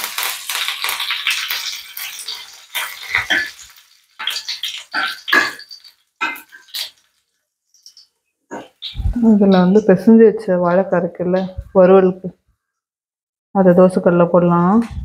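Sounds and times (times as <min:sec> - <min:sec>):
garlic sizzling in hot oil: 0:00.0 - 0:10.0
spatula stirring and scraping: 0:01.2 - 0:09.9.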